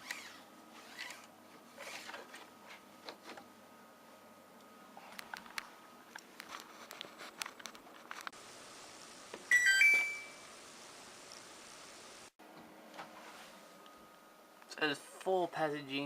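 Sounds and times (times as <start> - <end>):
dryer control panel beep: 9.5 - 10.4.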